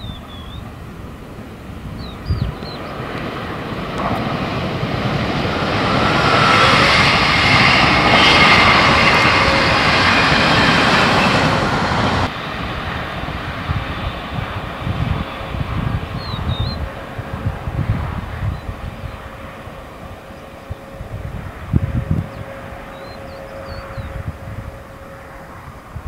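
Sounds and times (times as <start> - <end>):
bird chirp: 0.0 - 0.7, 1.9 - 3.2, 16.1 - 16.9, 22.2 - 24.2
passenger train passing: 0.0 - 26.0
wind buffeting the microphone: 0.0 - 26.0
faint steady whine: 13.7 - 26.0.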